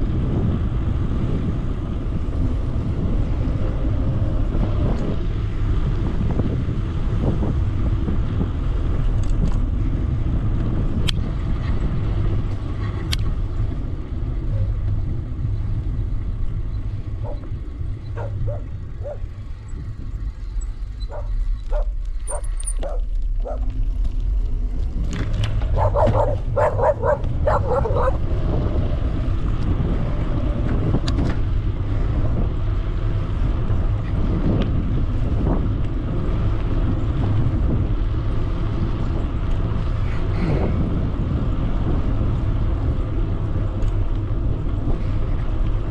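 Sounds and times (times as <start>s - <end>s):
wind rumble on microphone: 0.0s - 45.9s
dog barking: 17.2s - 17.5s, 18.2s - 19.2s, 21.1s - 23.6s, 25.8s - 28.2s.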